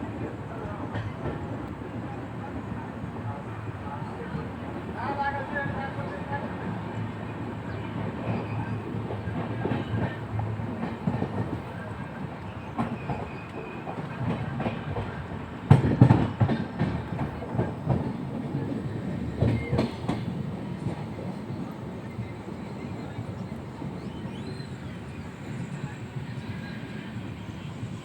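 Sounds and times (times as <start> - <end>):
train rumble from inside coach: 0.0 - 28.0
train clattering: 4.1 - 28.0.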